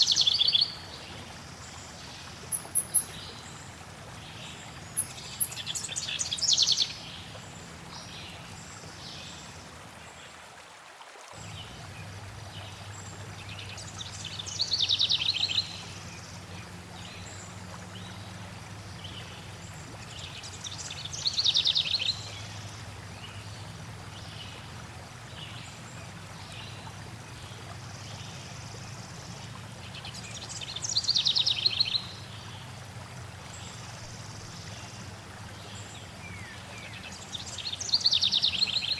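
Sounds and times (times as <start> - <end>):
flowing water: 0.0 - 38.9
songbird trilling: 2.5 - 3.2.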